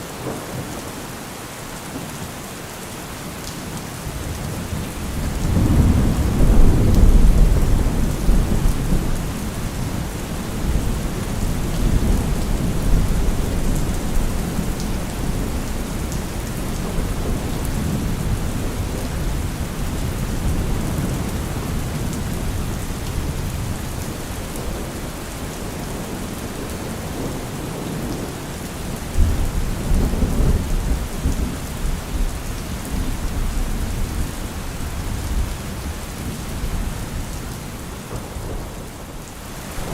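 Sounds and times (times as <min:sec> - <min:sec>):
heavy rain: 0:00.0 - 0:39.9
rolling thunder: 0:04.8 - 0:25.0.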